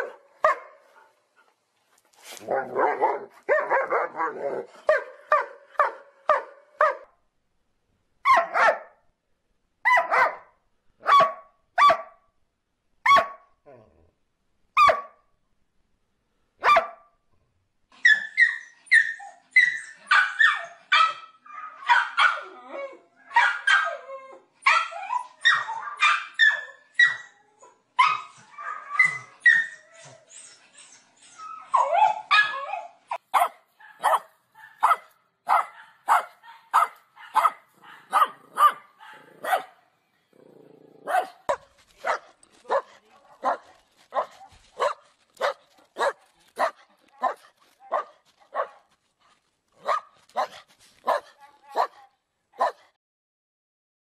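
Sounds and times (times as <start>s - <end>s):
dogs barking: 0.0s - 1.0s, 2.4s - 7.1s, 8.3s - 8.9s, 9.9s - 10.4s, 11.0s - 12.1s, 20.1s - 22.5s, 23.3s - 24.0s, 33.3s - 39.8s, 41.0s - 48.8s, 49.8s - 52.0s, 52.6s - 52.9s.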